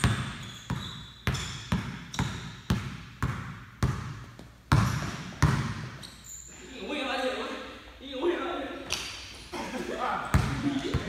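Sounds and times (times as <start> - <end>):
basketball bouncing on hardwood: 0.0 - 5.9.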